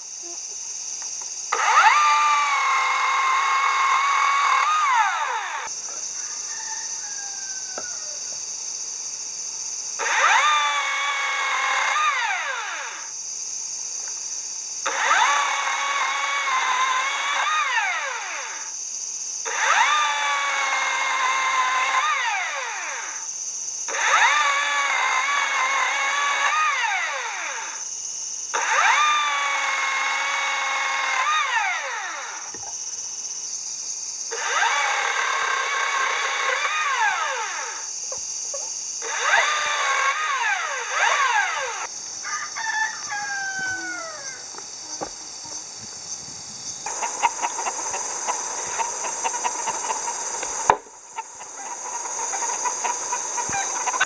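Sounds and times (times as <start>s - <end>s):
power drill whining: 1.5s - 6.1s, 10.0s - 13.1s, 14.8s - 18.8s, 19.4s - 23.3s, 23.9s - 27.8s, 28.5s - 32.8s, 34.3s - 38.3s, 39.0s - 41.9s, 46.9s - 54.0s.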